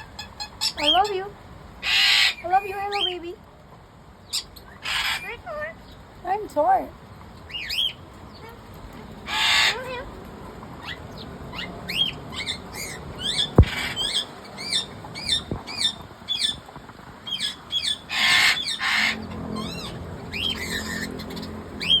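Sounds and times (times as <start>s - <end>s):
lovebird squawk: 1.8s - 3.1s, 4.3s - 5.5s, 9.3s - 10.0s, 10.8s - 16.6s, 17.3s - 22.0s.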